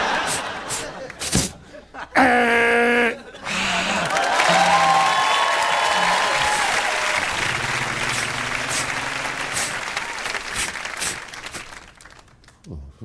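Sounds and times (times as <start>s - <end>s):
audience applauding: 3.5s - 12.6s.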